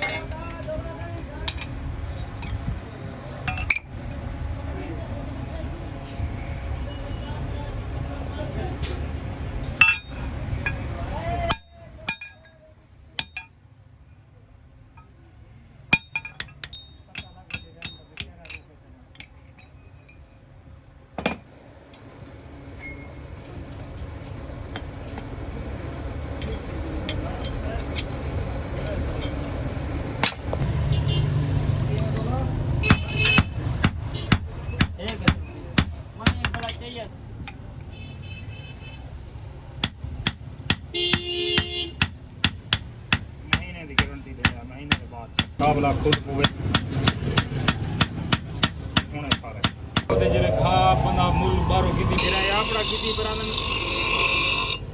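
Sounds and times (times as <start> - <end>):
hammer striking metal: 13.2 - 13.5, 15.9 - 19.3, 30.2 - 30.6, 32.8 - 36.8, 39.8 - 50.2, 52.2 - 54.9
low rumbling noise: 50.1 - 53.2
steady pitched tone: 50.1 - 54.9
hammer ringing on anvil: 52.2 - 54.9.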